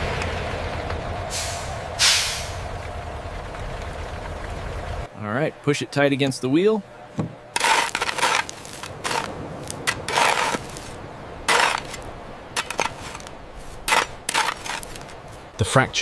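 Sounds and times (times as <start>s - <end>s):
metal tools clinking and scraping: 12.6s - 13.3s.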